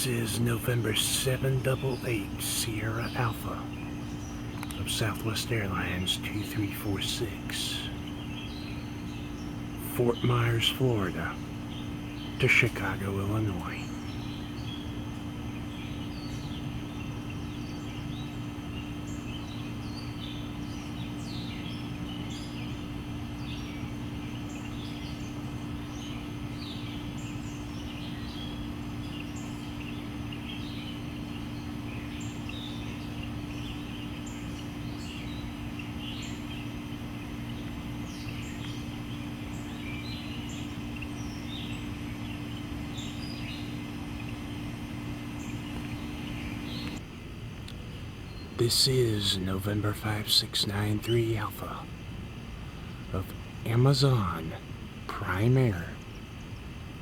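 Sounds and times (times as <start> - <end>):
small birds chirping: 0.0 - 57.0
steady low hum: 0.0 - 57.0.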